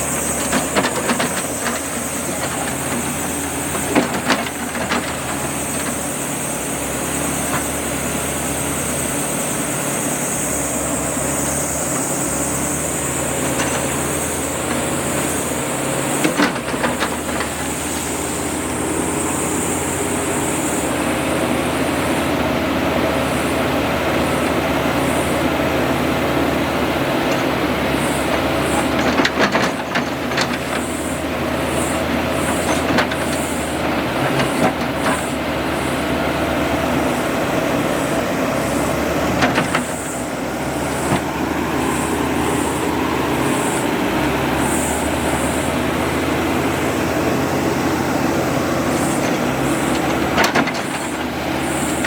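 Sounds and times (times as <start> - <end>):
constant hiss: 0.0 - 52.0
diesel engine running: 0.0 - 52.0.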